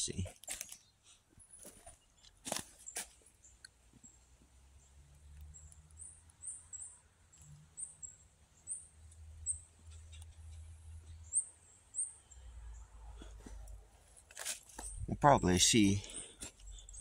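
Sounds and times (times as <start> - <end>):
small bird high-pitched calls: 5.5 - 12.8.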